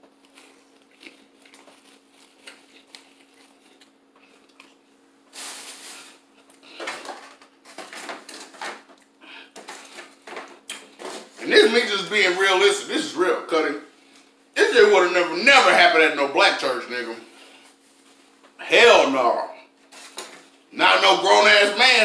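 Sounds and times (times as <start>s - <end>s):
chewing mouth sounds: 0.2s - 4.8s.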